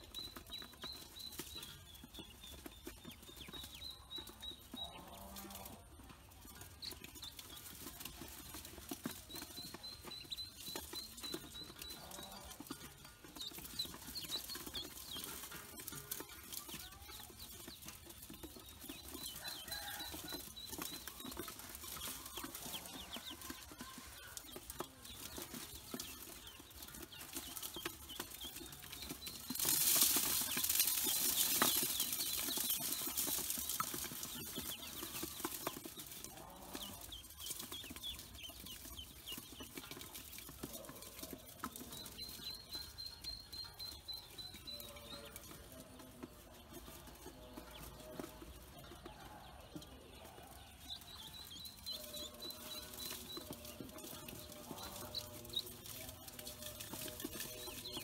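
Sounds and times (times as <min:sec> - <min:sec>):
ducklings peeping: 0:00.0 - 0:58.0
grain pouring into metal bowl: 0:07.0 - 0:45.8, 0:50.4 - 0:58.0.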